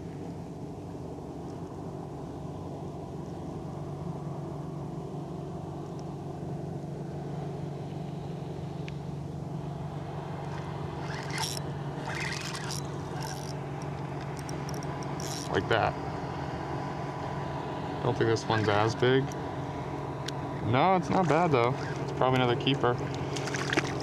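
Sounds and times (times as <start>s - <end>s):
motor droning: 0.0s - 24.0s
short scraping clicks: 10.5s - 15.6s.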